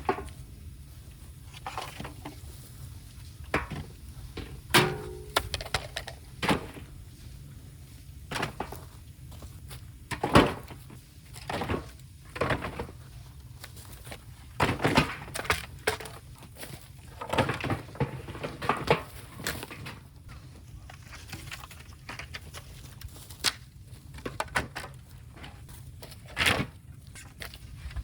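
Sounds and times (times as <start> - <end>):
bamboo cracking and knocking: 14.6 - 28.0.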